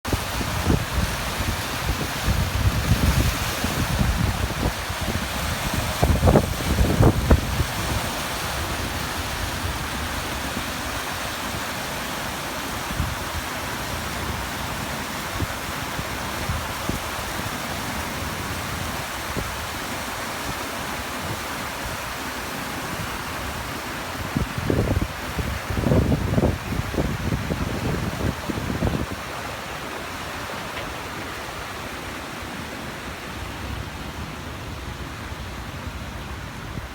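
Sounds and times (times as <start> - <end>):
waterfall rushing: 0.0 - 36.9
wind buffeting microphone: 0.1 - 11.2, 23.0 - 32.1.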